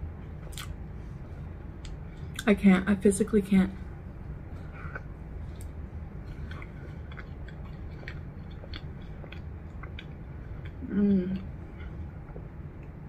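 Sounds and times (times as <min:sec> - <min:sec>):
low steady hum: 0:00.0 - 0:13.0
person chewing food: 0:04.5 - 0:13.0.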